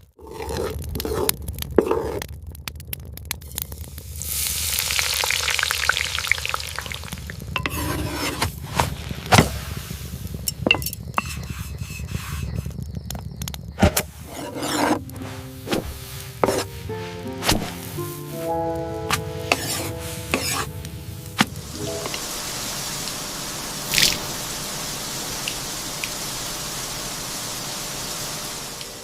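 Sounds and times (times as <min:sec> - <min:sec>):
food sizzling in a pan: 0:03.8 - 0:12.8, 0:14.0 - 0:29.0
utensils clinking and knocking: 0:10.5 - 0:11.5.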